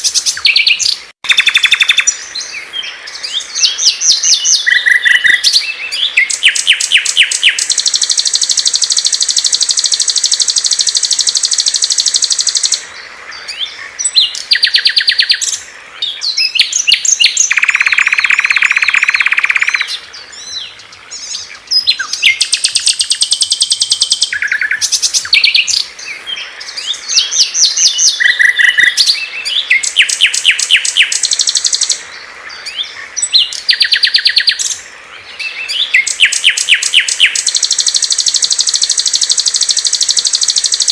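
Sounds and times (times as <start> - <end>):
songbirds trilling and chattering: 0.0 - 40.9
low buzzing bird trill: 6.3 - 12.8, 36.0 - 40.9.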